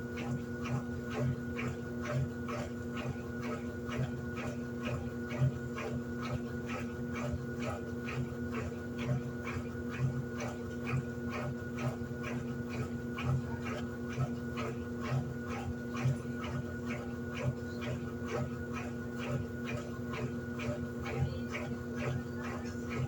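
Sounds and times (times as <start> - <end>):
washing machine running: 0.0 - 23.0.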